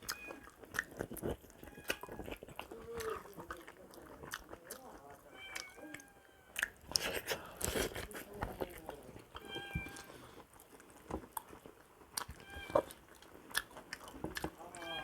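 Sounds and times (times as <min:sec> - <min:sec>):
chewing and biting with wet crunches: 0:00.0 - 0:15.0.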